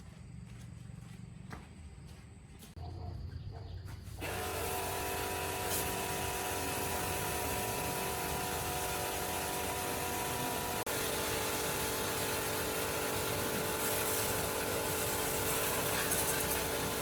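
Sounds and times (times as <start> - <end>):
power tool whining: 4.2 - 17.0.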